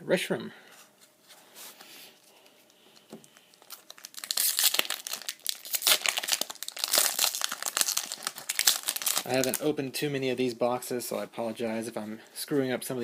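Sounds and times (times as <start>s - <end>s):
foil wrapper tearing and crinkling: 3.5s - 9.7s.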